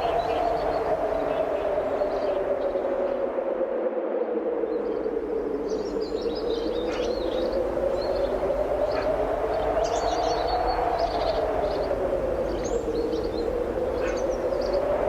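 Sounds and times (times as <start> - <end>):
strong wind howling: 0.0 - 15.0
small birds chirping: 5.6 - 15.0.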